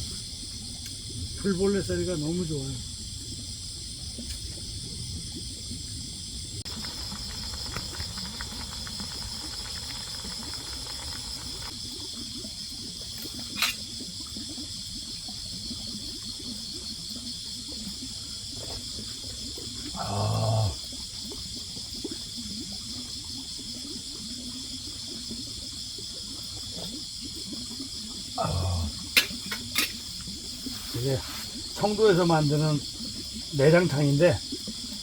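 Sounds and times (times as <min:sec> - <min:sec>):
fast pulsing insect call: 0:00.0 - 0:35.0
insects trilling: 0:00.0 - 0:35.0
sharp click: 0:13.5 - 0:13.8.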